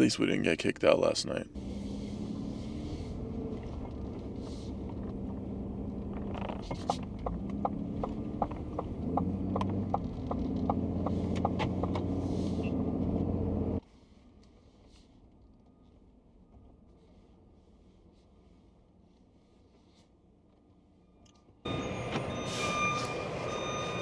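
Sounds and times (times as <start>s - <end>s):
vehicle engine idling: 1.4s - 13.8s.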